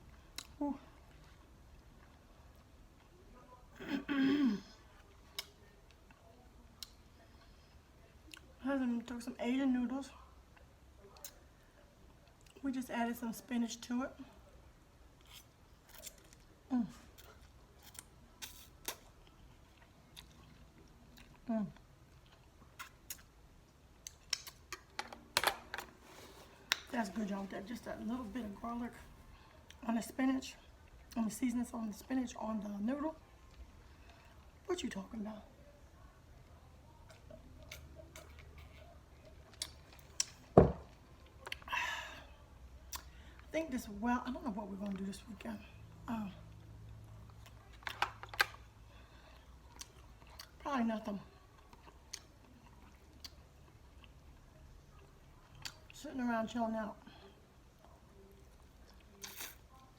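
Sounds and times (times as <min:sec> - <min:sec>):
mouth clicks and smacks chewing: 0:24.0 - 0:24.9.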